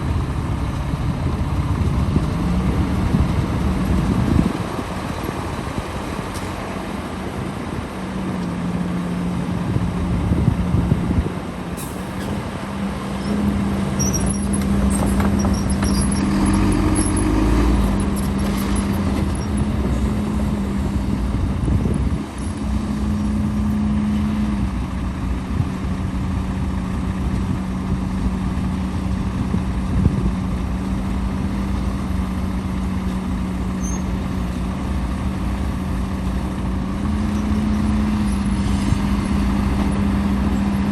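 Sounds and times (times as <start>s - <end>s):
heavy diesel machinery running: 0.0s - 40.9s.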